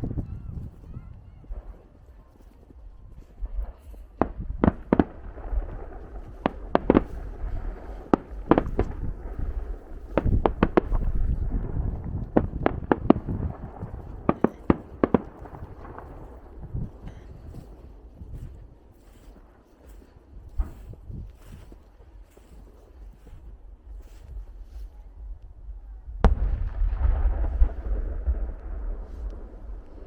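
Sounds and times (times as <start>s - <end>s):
fireworks cracking and banging: 3.2s - 24.9s, 26.2s - 30.0s
low rumble: 3.5s - 18.8s, 23.0s - 30.0s.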